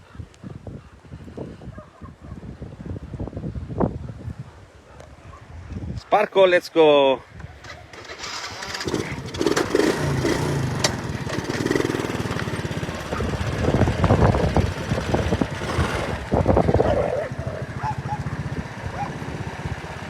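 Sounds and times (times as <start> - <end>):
irregular engine bursts: 7.6 - 20.0
engine running with low pulse: 8.6 - 20.0.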